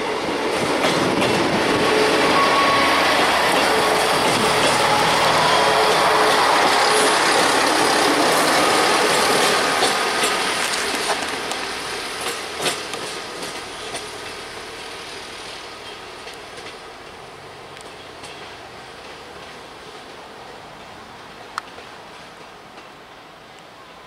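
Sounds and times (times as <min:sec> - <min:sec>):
train passing: 0:00.0 - 0:24.0
wheels clicking over rail joints: 0:06.6 - 0:14.4.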